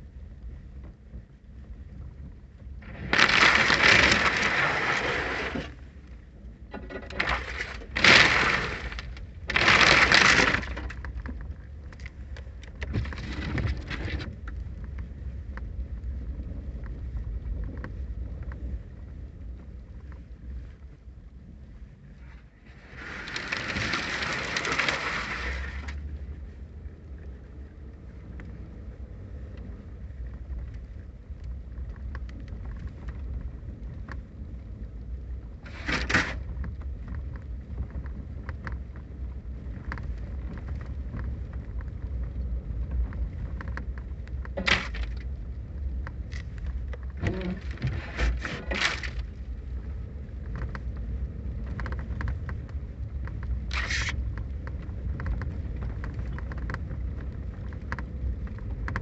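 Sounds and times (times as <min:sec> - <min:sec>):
wind rumbling on microphone: 0:00.0 - 0:59.0
rain and ice pellets ticking: 0:22.8 - 0:47.9, 0:48.7 - 0:59.0.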